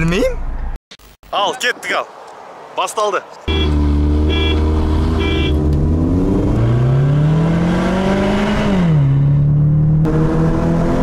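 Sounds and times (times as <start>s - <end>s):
car engine revving: 3.5s - 11.0s.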